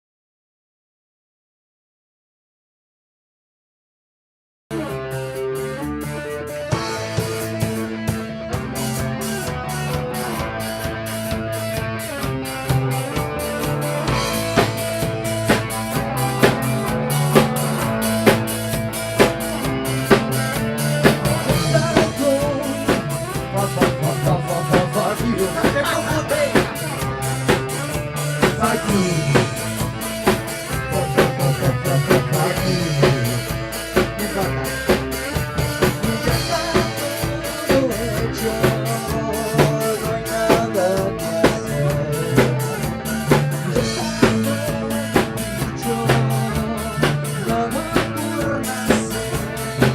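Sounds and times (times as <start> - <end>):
drum kit beat: 4.7 - 49.9
instrumental band music: 4.7 - 49.9.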